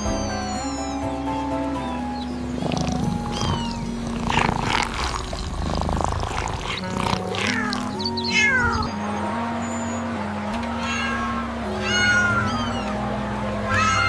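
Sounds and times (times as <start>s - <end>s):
soft background music: 0.0s - 14.0s
cat meowing: 3.2s - 5.2s, 6.3s - 8.9s, 10.8s - 13.0s, 13.7s - 14.0s.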